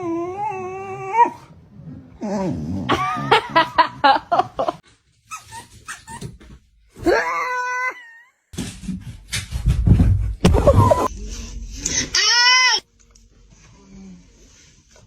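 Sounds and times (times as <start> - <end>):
dog yipping: 5.3 - 6.3.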